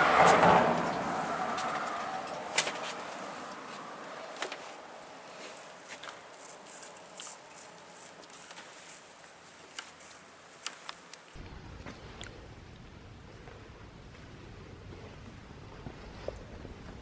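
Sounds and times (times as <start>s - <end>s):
car driving past: 0.0s - 4.4s.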